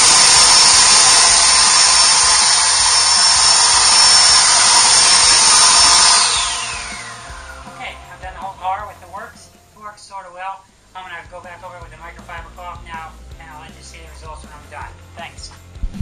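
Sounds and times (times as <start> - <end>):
leaf blower whining: 0.0 - 8.8.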